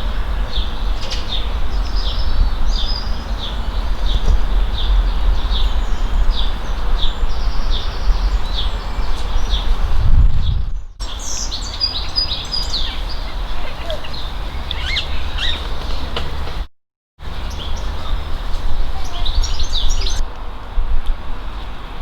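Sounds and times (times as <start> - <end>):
bird chirping: 0.0 - 16.4, 17.3 - 20.2
loud low rumble: 0.0 - 16.6.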